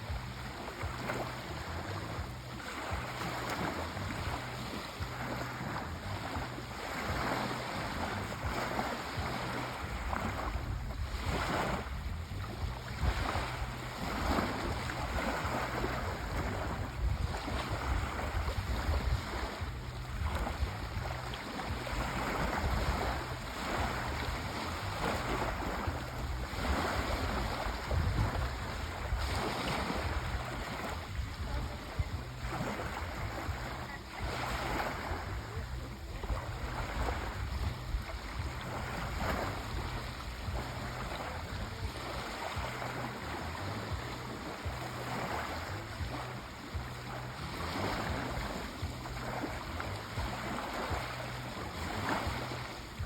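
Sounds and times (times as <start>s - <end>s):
sea waves rushing: 0.0s - 53.0s.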